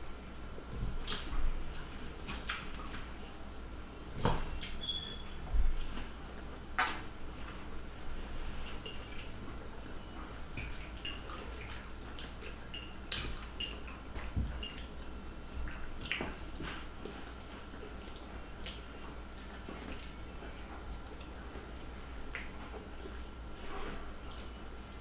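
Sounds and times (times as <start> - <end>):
faint steady hum: 0.0 - 25.0
wet smacking of eating noodles: 15.6 - 20.2.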